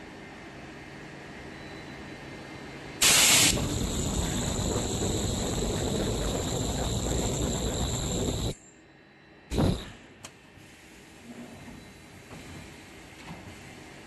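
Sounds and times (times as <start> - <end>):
machine noise with high whine: 0.0 - 10.4
burst of hissing air: 3.0 - 8.6, 9.5 - 10.0.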